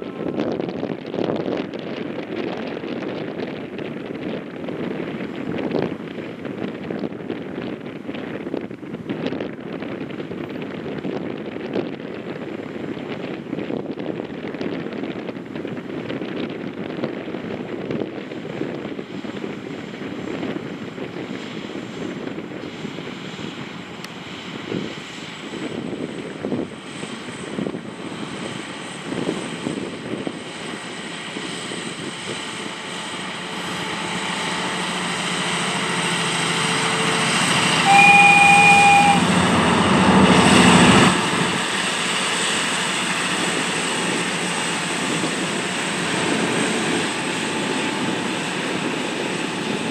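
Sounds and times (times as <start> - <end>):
diesel train approaching: 0.0 - 49.9
train horn: 33.0 - 42.0.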